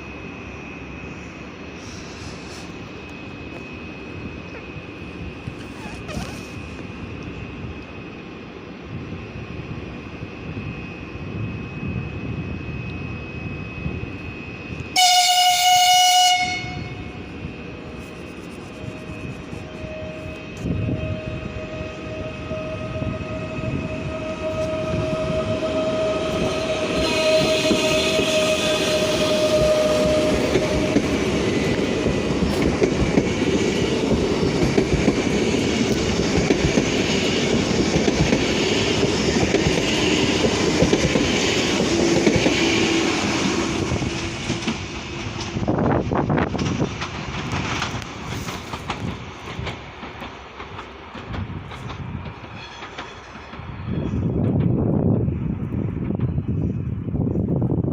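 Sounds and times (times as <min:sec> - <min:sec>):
electric train whine: 0:00.0 - 0:57.9
train horn blast: 0:14.8 - 0:17.3, 0:18.8 - 0:31.2
train wheels clattering on rails: 0:24.5 - 0:57.1.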